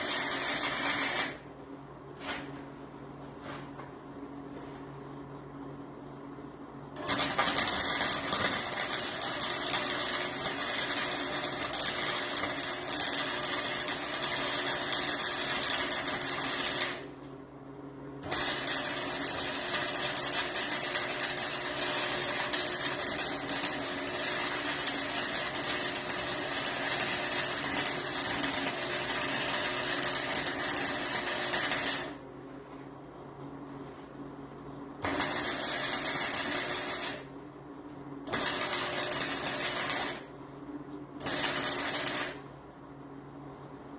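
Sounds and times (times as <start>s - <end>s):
welding crackling hiss: 0.0s - 1.4s, 7.0s - 17.2s, 18.2s - 32.2s, 35.0s - 37.3s, 38.3s - 40.3s, 41.2s - 42.4s
faint electrical hum: 0.0s - 43.9s.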